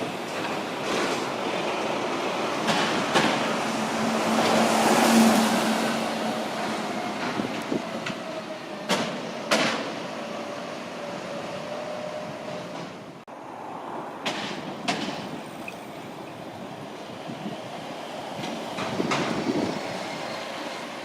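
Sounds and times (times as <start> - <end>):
street traffic noise: 0.0 - 21.0
vehicle passing: 3.6 - 7.8.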